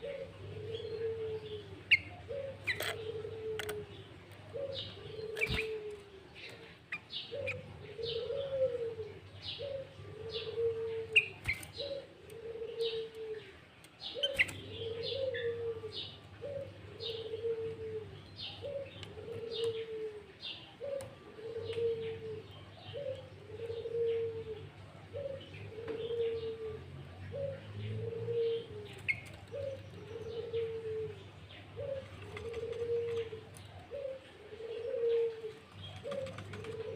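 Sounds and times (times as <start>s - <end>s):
dove cooing: 0.0s - 36.9s
songbirds chirping: 0.0s - 36.9s.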